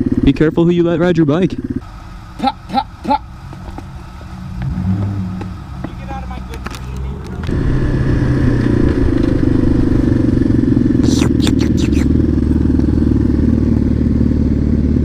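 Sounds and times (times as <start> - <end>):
dirt bike engine revving: 7.5 - 14.9.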